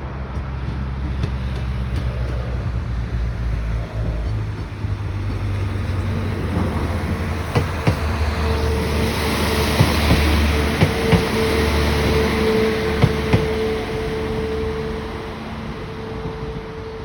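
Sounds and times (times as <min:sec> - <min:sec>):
diesel train rumble: 0:00.0 - 0:17.0.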